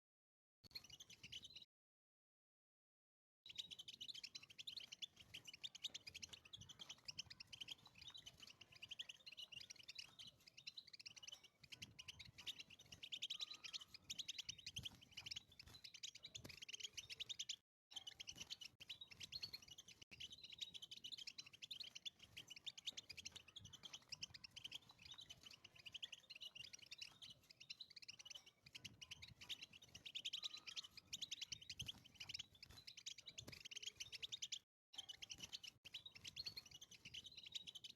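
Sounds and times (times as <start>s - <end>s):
goldfinch twittering song: 0.7s - 1.6s, 3.5s - 37.9s.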